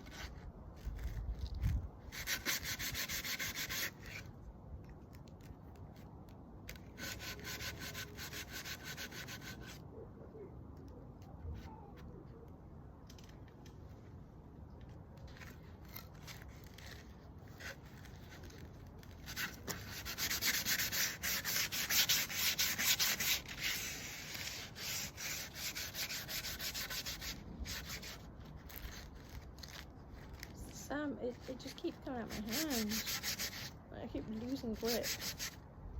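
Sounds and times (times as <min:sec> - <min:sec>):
sandpaper rubbing on wood: 0:02.1 - 0:04.3, 0:07.0 - 0:09.8, 0:19.2 - 0:29.8, 0:31.3 - 0:33.8, 0:34.4 - 0:35.6.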